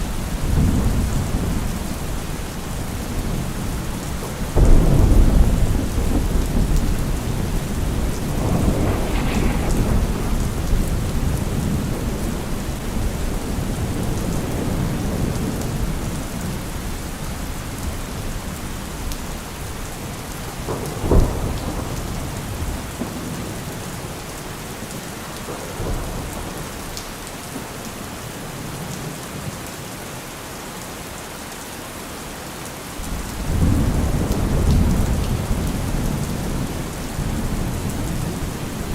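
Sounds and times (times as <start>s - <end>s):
steady rain: 0.0s - 38.9s
thunder rumbling: 0.2s - 16.2s
sharp thunder crack: 4.6s - 13.3s.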